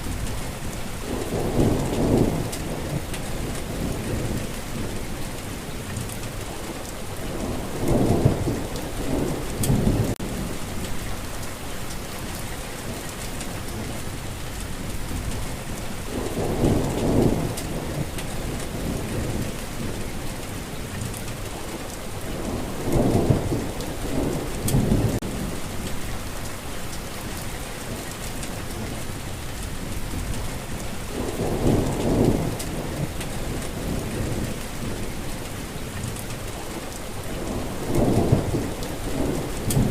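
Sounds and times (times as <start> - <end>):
heavy rainfall: 0.0 - 39.9
low thunder rolls: 7.3 - 11.4, 15.1 - 20.1, 22.3 - 26.1, 31.1 - 35.3, 37.4 - 39.9.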